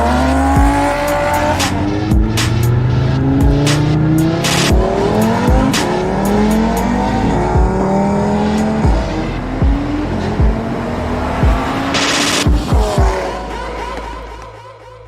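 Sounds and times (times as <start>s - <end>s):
exhaust cracks: 0.0s - 14.6s
car engine revving: 0.0s - 15.0s.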